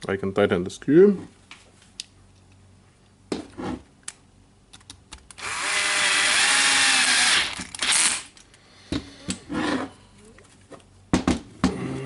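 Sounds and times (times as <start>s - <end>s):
electric screwdriver motor whine: 5.4s - 8.3s.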